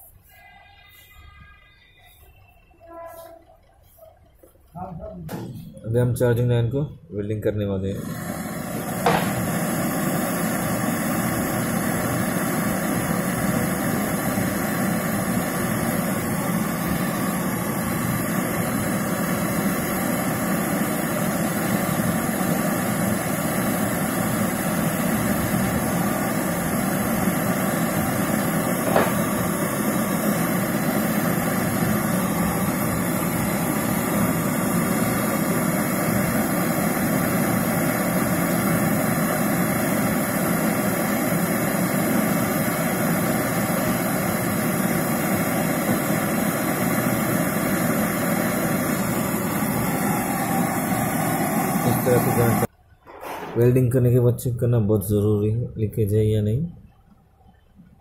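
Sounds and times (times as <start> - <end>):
gas torch flame hissing: 7.9 - 52.7.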